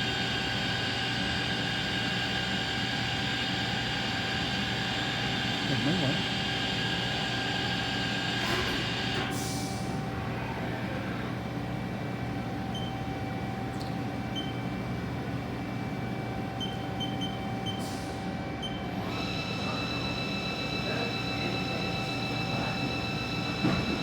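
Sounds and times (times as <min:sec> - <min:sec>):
lathe machine hum: 0:00.0 - 0:09.2, 0:18.3 - 0:24.0.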